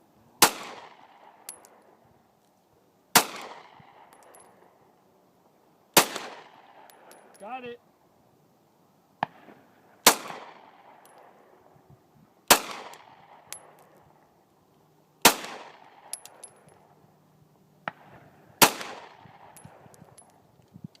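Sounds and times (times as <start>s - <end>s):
pistol shots echoing: 10.0s - 11.4s, 12.5s - 13.8s, 15.2s - 16.6s, 17.9s - 19.8s.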